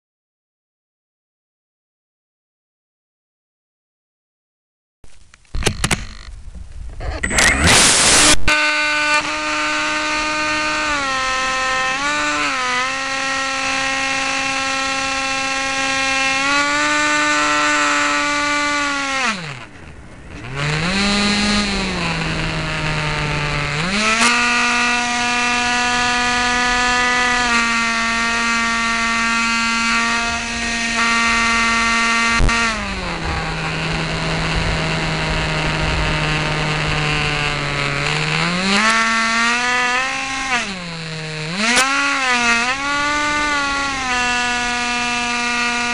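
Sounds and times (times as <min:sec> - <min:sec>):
electric motor and propeller whine: 0:05.6 - 0:45.9
rushing air: 0:32.5 - 0:38.2.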